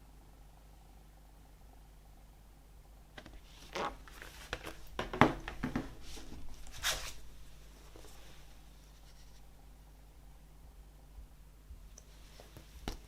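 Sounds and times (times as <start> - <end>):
record packaging scraping and rustling: 3.2 - 9.5.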